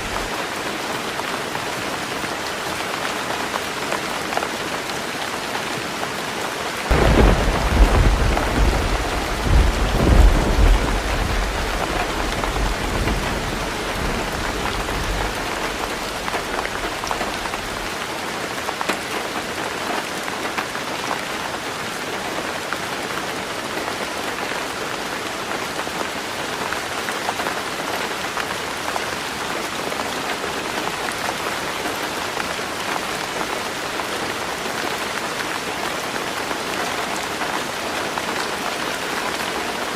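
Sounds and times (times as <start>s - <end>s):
heavy rain on a tin roof: 0.0s - 39.9s
thunder rumbling: 6.9s - 17.9s.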